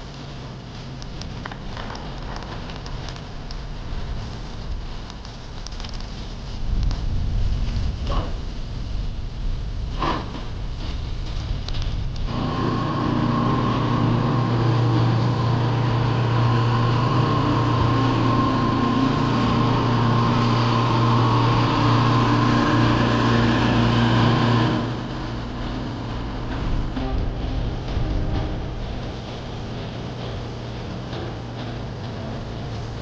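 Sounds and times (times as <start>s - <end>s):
engine running steadily: 0.0s - 33.0s.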